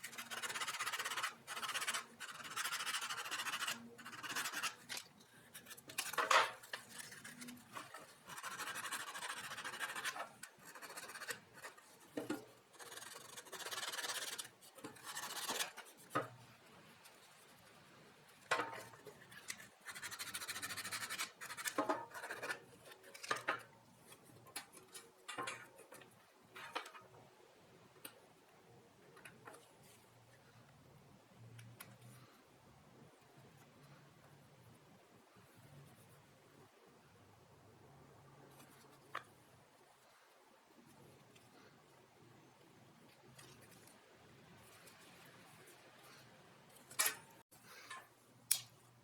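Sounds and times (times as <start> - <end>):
rubbing and scraping metal parts: 0.1 - 16.4.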